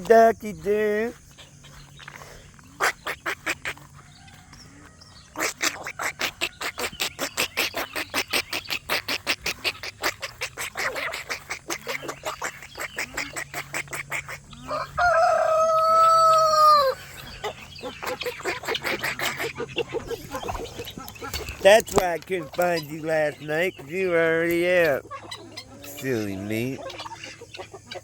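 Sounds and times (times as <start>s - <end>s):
poultry harsh repeated calls: 0.0s - 28.0s
rooster crowing: 4.0s - 5.4s, 14.5s - 17.1s.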